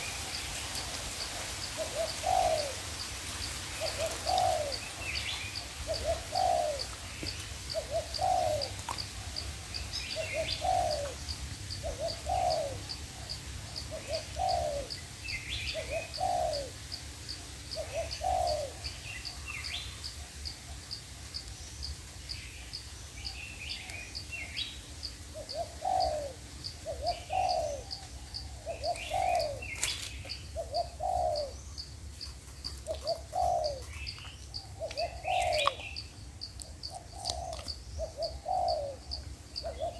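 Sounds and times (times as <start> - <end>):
doves cooing: 0.0 - 16.8, 17.7 - 19.8, 25.3 - 31.6, 32.4 - 36.0, 36.7 - 39.9
small birds chirping: 0.0 - 39.9.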